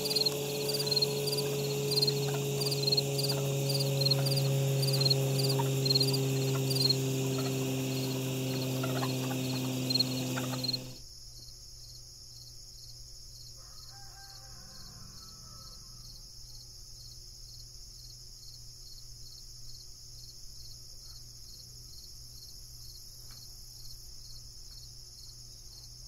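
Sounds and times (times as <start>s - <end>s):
frogs chirping: 0.0s - 11.0s
insect-like drone: 0.0s - 11.0s
steady low hum: 0.0s - 11.0s.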